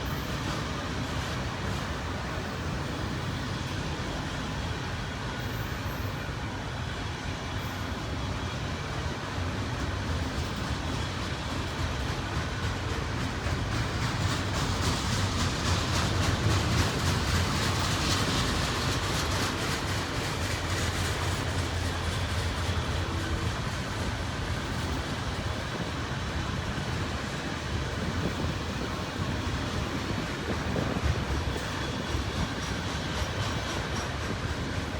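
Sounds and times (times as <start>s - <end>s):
freight train wheels rumbling: 0.0s - 34.9s
wheels clicking over rail joints: 8.9s - 34.9s.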